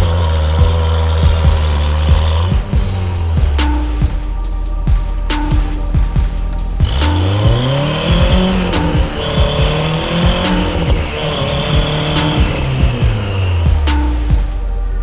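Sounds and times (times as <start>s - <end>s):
background music with a beat: 0.0s - 15.0s
vehicle engine revving hard: 6.2s - 14.5s.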